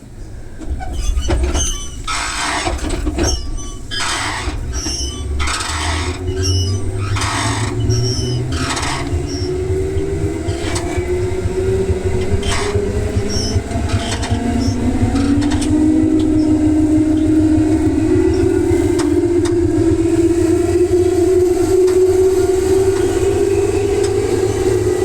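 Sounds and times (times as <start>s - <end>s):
rail joint clicks: 0.0s - 25.0s
train motors whining: 0.0s - 25.0s
wheels rumbling on rails: 0.0s - 25.0s
rising motor tone: 5.0s - 25.0s.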